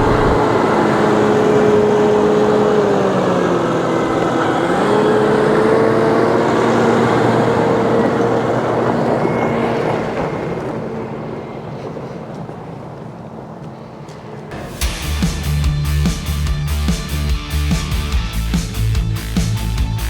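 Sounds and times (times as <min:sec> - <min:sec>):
motor humming: 0:00.0 - 0:03.6.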